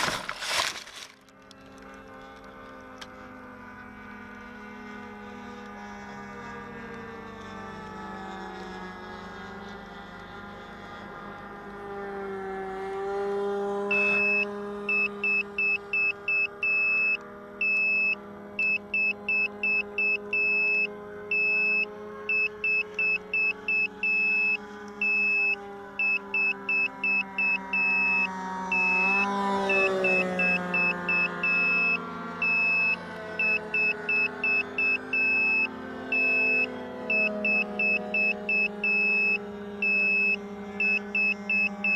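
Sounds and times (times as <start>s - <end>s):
model airplane engine running: 0.0s - 41.9s
high electronic beeper: 13.9s - 41.9s.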